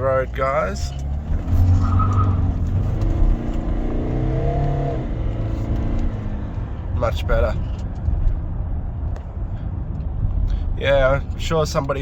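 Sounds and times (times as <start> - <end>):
diesel engine accelerating: 0.3 - 7.5.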